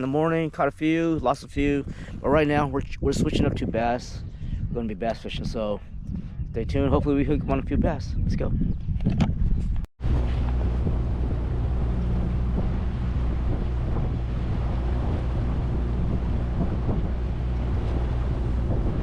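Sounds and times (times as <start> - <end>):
wind on microphone: 0.0 - 19.0
boat motor running: 10.0 - 19.0.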